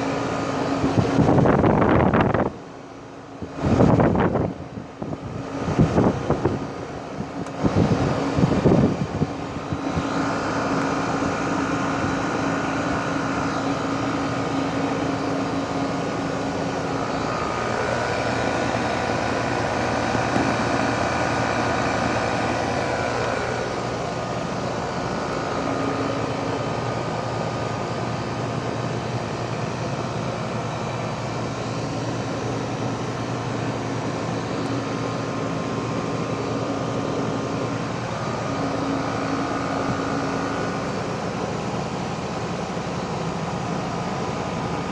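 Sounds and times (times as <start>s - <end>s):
heat pump humming: 0.0s - 44.9s.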